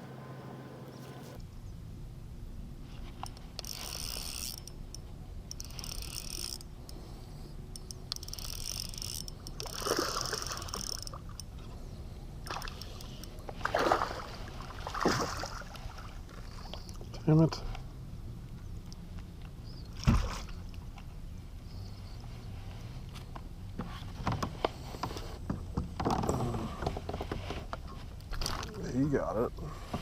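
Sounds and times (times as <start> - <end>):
water splashes: 13.6 - 17.1, 20.0 - 20.7.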